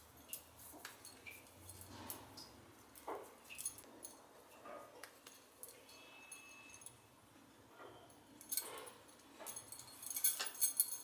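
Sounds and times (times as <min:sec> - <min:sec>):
small clink: 0:05.2 - 0:07.0, 0:08.4 - 0:11.0.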